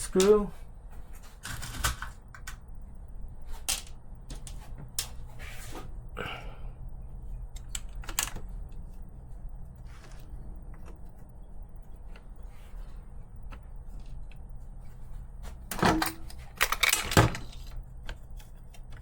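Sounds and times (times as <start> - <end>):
steady low hum: 0.0 - 19.0
small parts and tools clattering: 3.5 - 5.3, 15.4 - 19.0.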